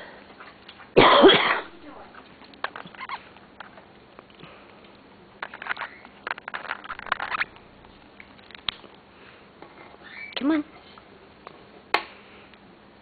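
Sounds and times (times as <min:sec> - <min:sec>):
parrot clicking and squeaking: 0:02.6 - 0:03.8, 0:05.4 - 0:07.6, 0:10.0 - 0:10.4.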